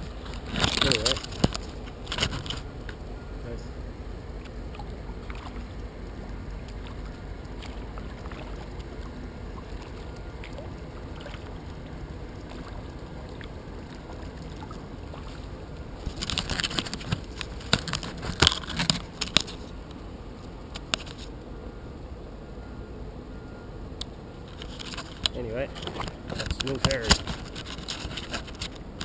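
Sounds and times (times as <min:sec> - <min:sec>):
splashing and scraping: 0:00.0 - 0:02.7, 0:04.4 - 0:19.8, 0:24.4 - 0:29.0
wind and water rushing: 0:00.0 - 0:19.3.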